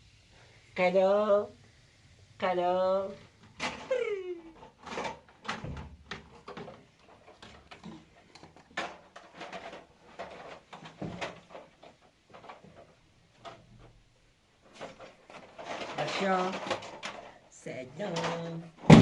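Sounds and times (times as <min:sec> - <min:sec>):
household objects knocking and clicking: 0:18.8 - 0:19.0.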